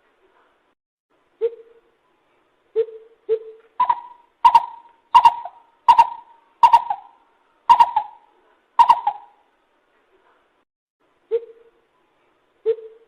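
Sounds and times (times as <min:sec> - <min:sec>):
bird calling short notes: 0:02.8 - 0:08.2, 0:08.8 - 0:09.4.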